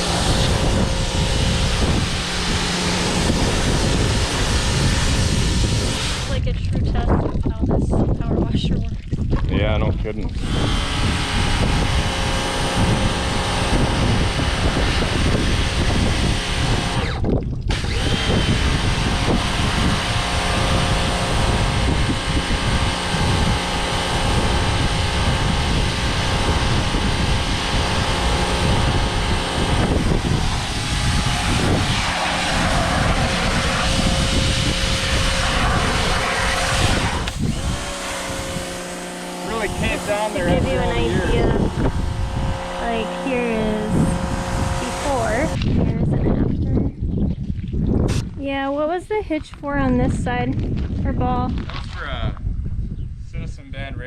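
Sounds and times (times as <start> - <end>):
water jet hissing: 0.0 - 6.5, 18.7 - 45.6
pressure washer motor drone: 0.0 - 8.2, 9.5 - 46.2.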